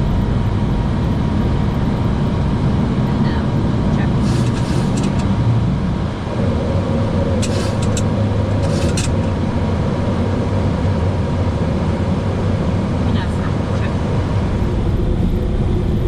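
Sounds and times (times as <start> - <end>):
jet rumble in cockpit: 0.0 - 16.0
short high rattles: 4.2 - 5.3, 7.4 - 9.3.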